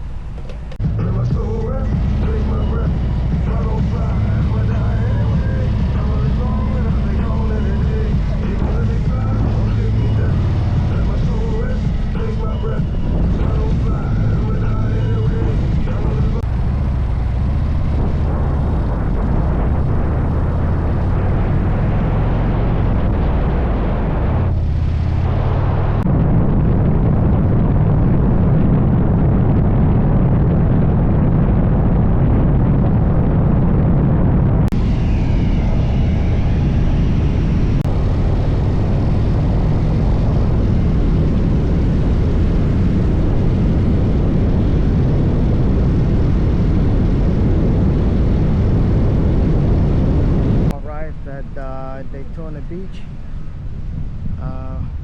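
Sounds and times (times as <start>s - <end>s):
motorcycle engine running: 0.0s - 50.8s
wind rushing over microphone: 0.0s - 55.0s.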